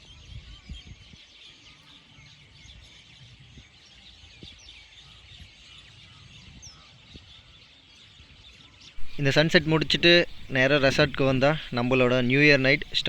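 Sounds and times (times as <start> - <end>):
small birds chirping: 9.0 - 13.0.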